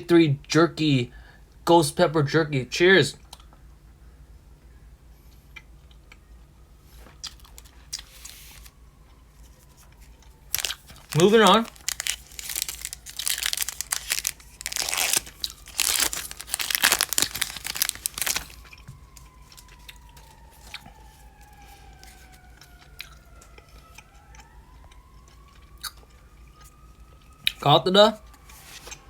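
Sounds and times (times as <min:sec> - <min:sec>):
foil wrapper crinkling and tearing: 0:07.1 - 0:08.8, 0:09.4 - 0:22.8.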